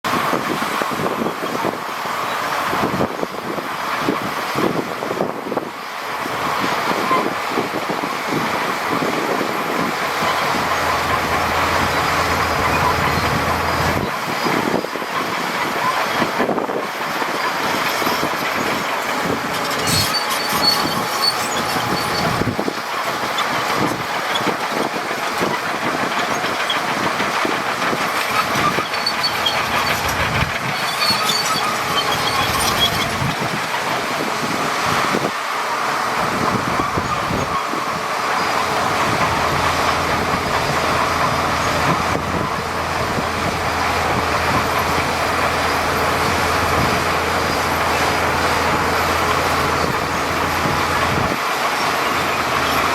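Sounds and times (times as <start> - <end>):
bulldozer engine running: 0.0 - 52.9
steel tracks clattering: 0.1 - 52.9
high track squeals: 6.5 - 16.6, 17.2 - 24.9, 27.8 - 33.5.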